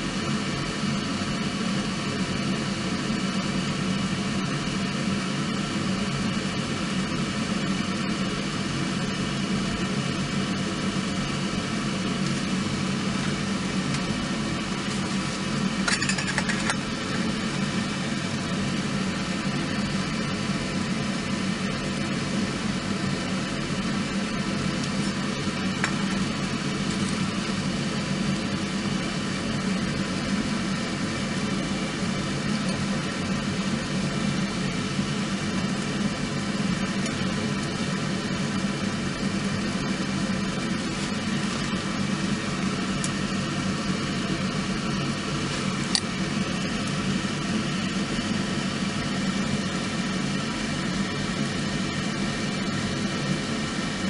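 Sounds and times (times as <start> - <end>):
fire crackles: 10.7 - 30.0.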